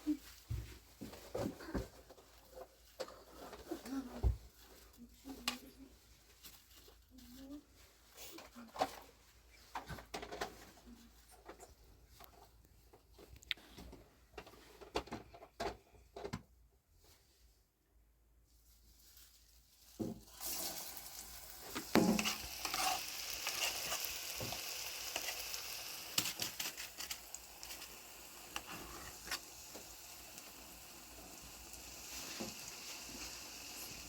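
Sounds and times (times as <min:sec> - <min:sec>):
food sizzling in a hot pan: 0:19.9 - 0:34.0.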